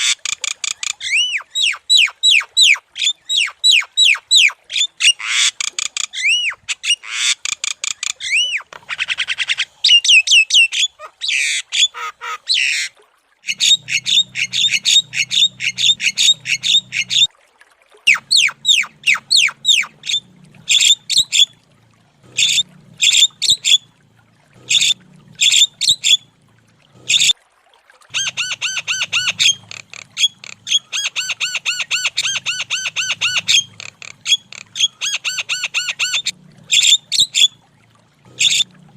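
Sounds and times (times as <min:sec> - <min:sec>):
myna squawking calls: 0:00.0 - 0:17.3, 0:18.1 - 0:21.5, 0:22.3 - 0:23.8, 0:24.6 - 0:26.2, 0:28.1 - 0:37.5, 0:38.4 - 0:38.7.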